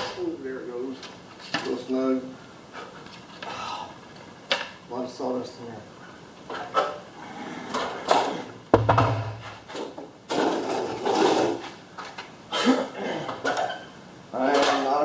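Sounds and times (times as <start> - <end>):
sharp knock: 8.7 - 9.5.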